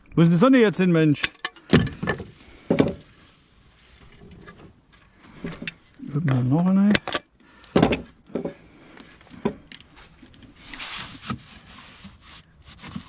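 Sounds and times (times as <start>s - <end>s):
slates knocking and clacking: 1.2s - 3.0s
scraping rustle: 9.9s - 13.0s.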